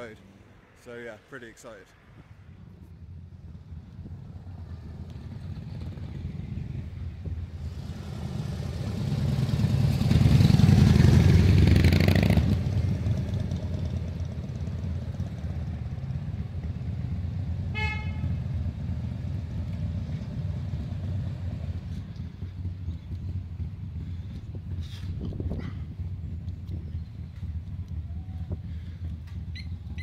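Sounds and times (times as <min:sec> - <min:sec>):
low traffic rumble: 0:00.0 - 0:30.0
vehicle engine passing: 0:01.9 - 0:30.0
short horn toot: 0:17.7 - 0:18.4.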